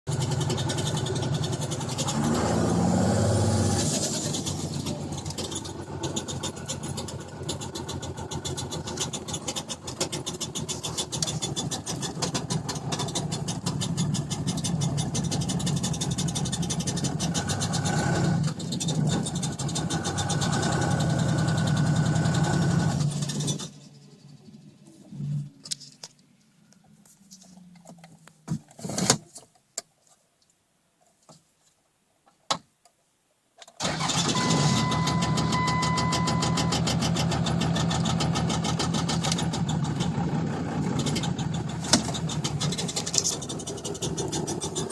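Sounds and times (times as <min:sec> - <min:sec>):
truck engine running: 0:00.1 - 0:24.7, 0:33.8 - 0:44.9.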